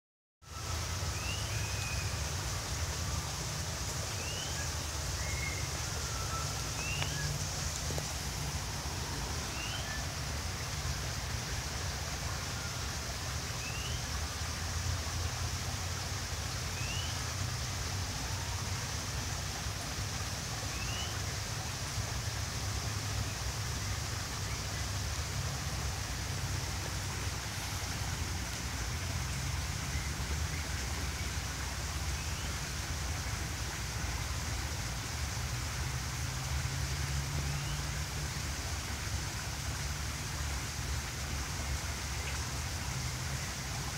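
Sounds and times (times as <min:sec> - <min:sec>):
outdoor hiss and low rumble: 0:00.4 - 0:43.9.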